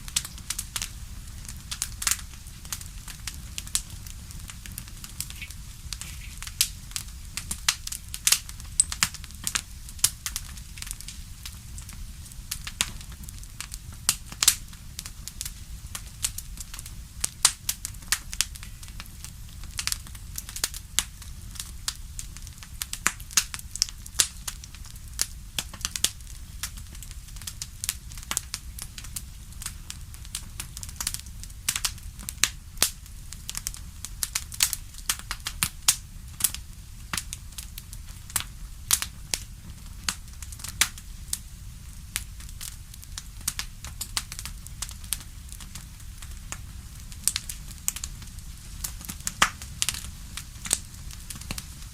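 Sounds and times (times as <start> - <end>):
steady low rumble: 0.0 - 14.8
fireplace fire crackling: 0.0 - 51.9.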